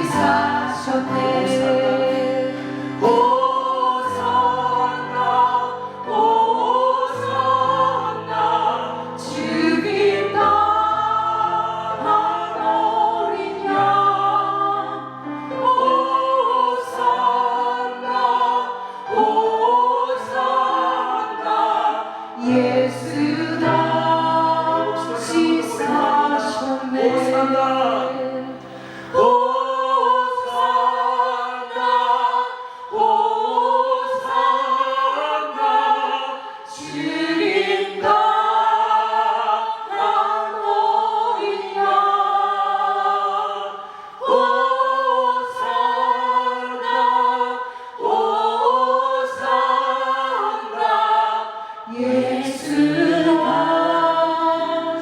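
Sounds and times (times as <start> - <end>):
choir singing a hymn: 0.0 - 55.0.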